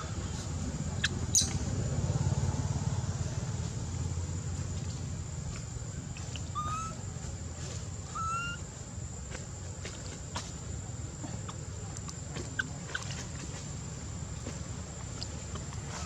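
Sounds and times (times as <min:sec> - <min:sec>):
low steady rumble: 0:00.0 - 0:16.0
whistle-like animal calls: 0:08.1 - 0:08.6.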